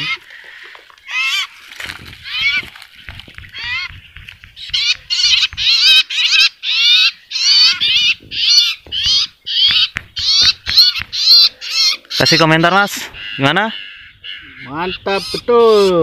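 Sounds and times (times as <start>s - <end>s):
small birds chirping: 0.0s - 16.0s
hands knocking on branches: 1.7s - 5.9s, 7.7s - 11.4s.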